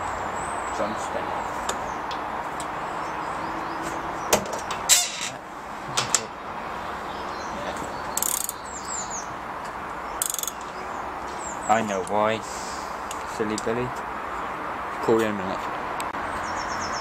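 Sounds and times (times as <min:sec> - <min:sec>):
ratchet clicking: 0:08.2 - 0:08.6, 0:10.2 - 0:10.7
sharp metal clicks: 0:08.2 - 0:08.6, 0:10.2 - 0:10.8.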